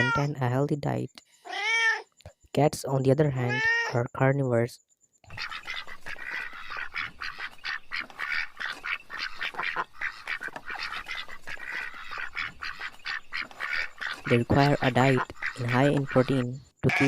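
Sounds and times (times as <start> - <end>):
ducks quacking: 5.3 - 17.0.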